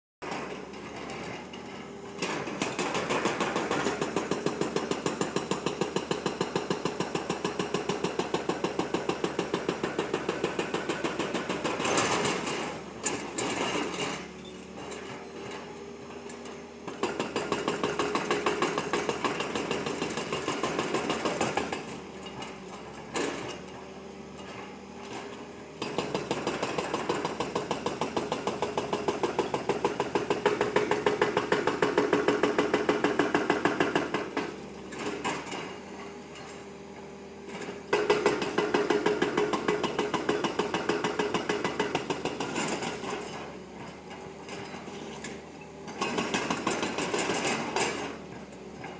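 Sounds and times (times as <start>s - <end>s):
excavator engine clattering: 0.2s - 36.6s.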